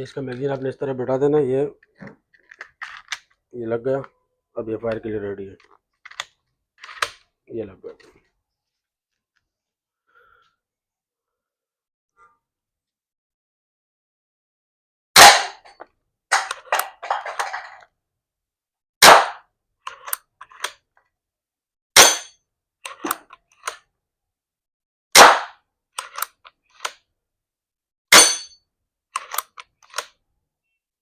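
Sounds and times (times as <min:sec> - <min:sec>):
air rifle shots: 0:15.2 - 0:15.6, 0:19.0 - 0:19.4, 0:25.2 - 0:25.6.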